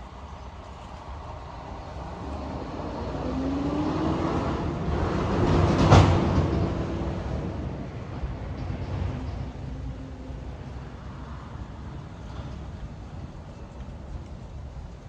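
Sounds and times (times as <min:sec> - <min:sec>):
road vehicle passing: 0:00.1 - 0:14.1.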